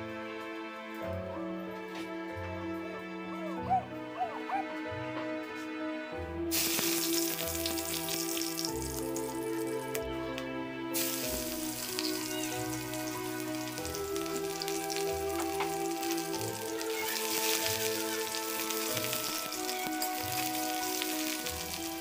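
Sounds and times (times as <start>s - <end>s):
background music: 0.0s - 22.0s
hot oil sizzling: 6.5s - 10.1s, 10.9s - 22.0s.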